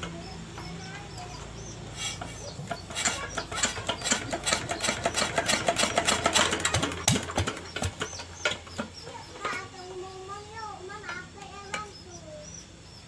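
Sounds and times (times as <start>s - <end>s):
metallic clicking and rattling: 2.7s - 9.7s.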